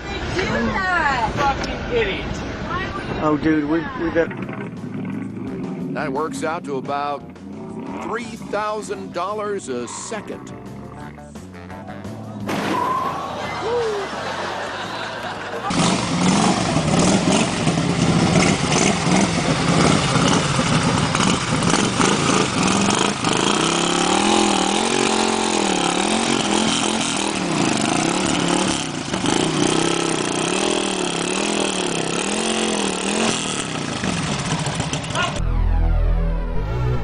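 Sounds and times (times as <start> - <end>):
motorcycle engine: 3.2 - 12.3, 13.9 - 37.0
motorcycle engine revving: 4.1 - 11.7, 15.4 - 37.0.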